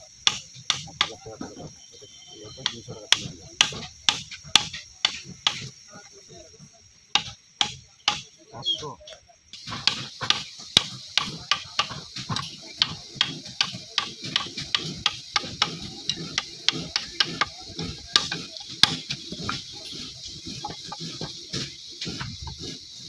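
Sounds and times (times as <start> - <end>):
hand tool knocking on wood: 0.3 - 1.2, 2.6 - 5.7, 7.2 - 8.3, 9.6 - 22.8.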